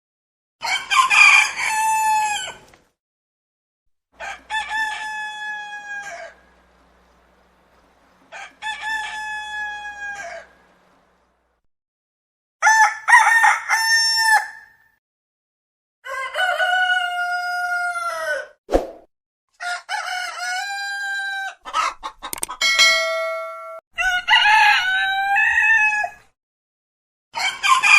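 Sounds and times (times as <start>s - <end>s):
roosters crowing: 0.6s - 2.7s, 4.2s - 11.2s, 12.6s - 14.8s, 16.0s - 18.5s, 19.6s - 22.8s, 24.0s - 26.3s, 27.4s - 27.9s
sharp click: 22.2s - 22.6s.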